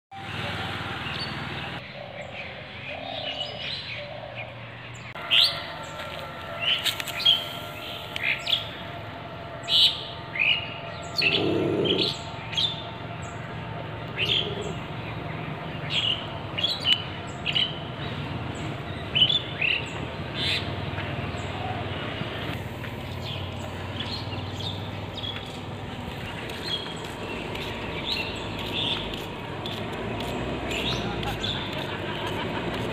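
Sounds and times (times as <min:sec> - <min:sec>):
small birds chirping: 0:23.0 - 0:32.9.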